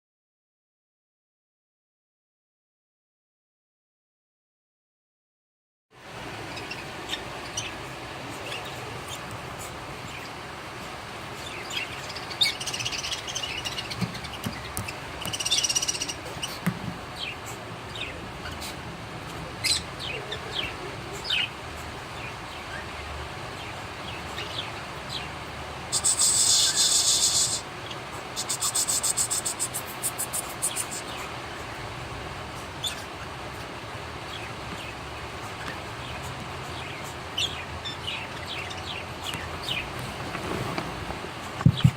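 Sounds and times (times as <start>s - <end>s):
cockatiels chirping: 11.4s - 17.4s.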